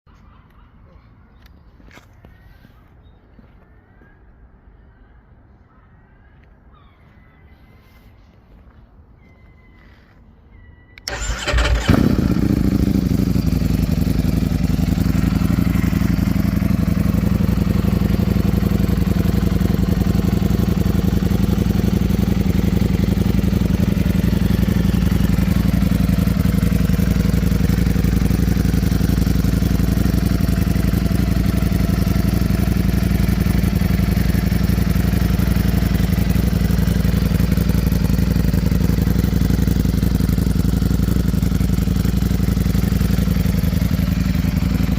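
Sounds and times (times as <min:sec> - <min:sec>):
motorcycle engine idling: 0:11.0 - 0:44.9.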